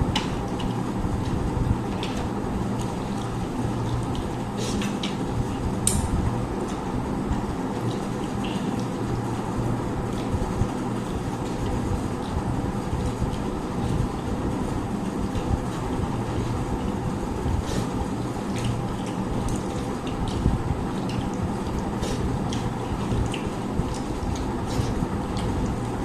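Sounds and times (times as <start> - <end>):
low rumbling hum: 0.0 - 26.0
eating clicks and wet smacks: 0.1 - 9.0, 17.7 - 26.0.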